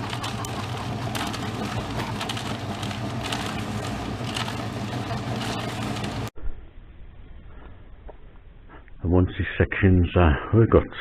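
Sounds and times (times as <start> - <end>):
small engine machine droning: 0.0 - 6.3.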